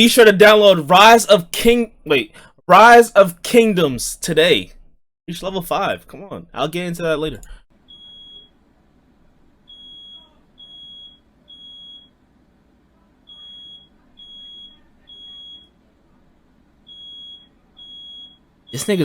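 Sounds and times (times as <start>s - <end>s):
smoke alarm beeping: 7.8s - 8.6s, 9.6s - 12.2s, 13.3s - 15.8s, 16.8s - 19.0s.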